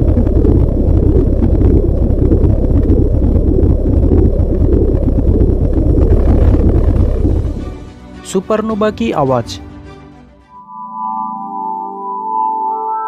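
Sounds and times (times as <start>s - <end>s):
deep steady rumble: 0.0s - 8.0s.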